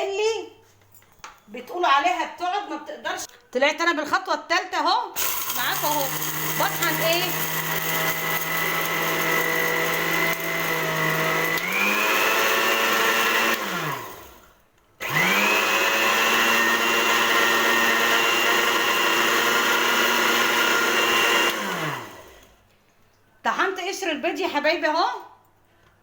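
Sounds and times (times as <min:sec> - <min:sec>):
blender grinding eggshells: 0:05.2 - 0:22.6.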